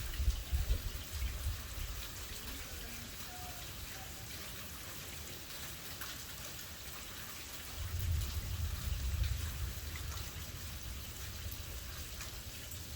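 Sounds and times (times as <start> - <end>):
steady rain falling: 0.0 - 12.9
raindrop ticks: 1.2 - 12.9
low rumble of thunder: 7.7 - 12.9.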